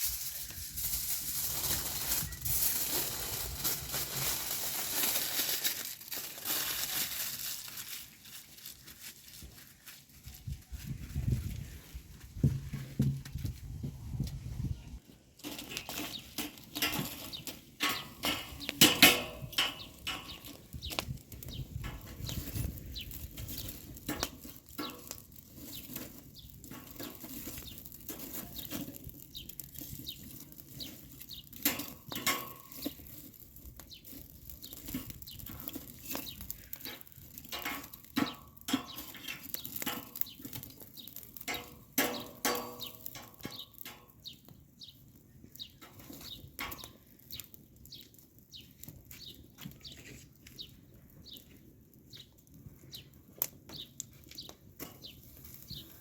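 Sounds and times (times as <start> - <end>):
metal cookware clinking: 15.5 - 20.5, 36.8 - 40.2.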